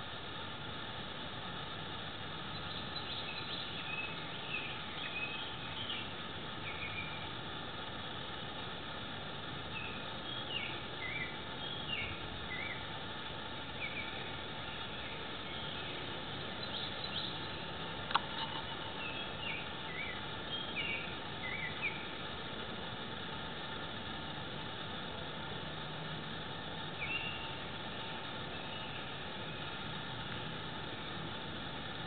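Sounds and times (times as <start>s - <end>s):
outdoor hiss: 0.0s - 32.0s
small bird chirping: 2.4s - 7.3s, 9.7s - 22.5s, 26.5s - 30.0s.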